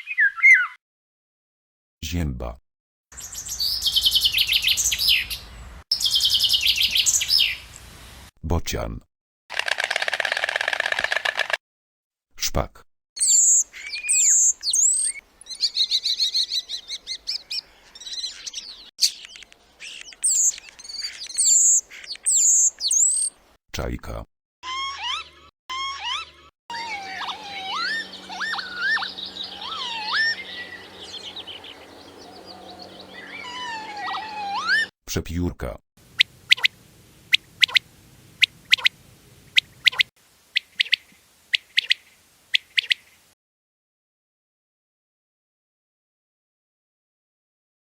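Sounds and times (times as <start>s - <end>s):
starling singing: 3.2s - 7.6s, 26.1s - 34.9s
quail calling: 24.6s - 34.9s, 36.2s - 43.2s.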